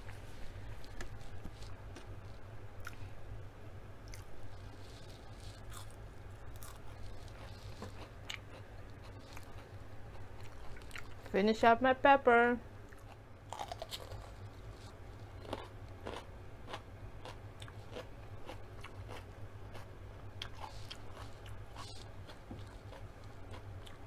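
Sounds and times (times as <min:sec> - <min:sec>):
crunching pepper: 0:04.0 - 0:11.3, 0:12.9 - 0:24.0.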